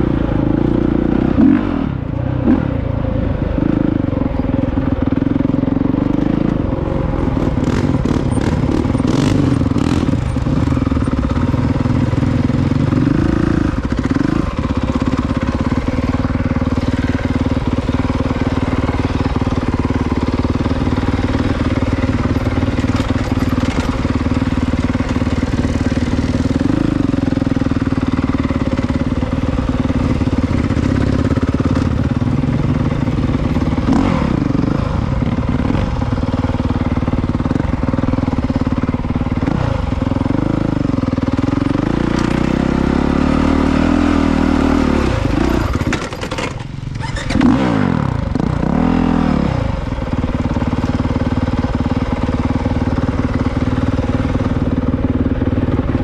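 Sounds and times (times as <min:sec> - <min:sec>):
dirt bike engine revving: 0:00.0 - 0:02.9, 0:05.0 - 0:56.0.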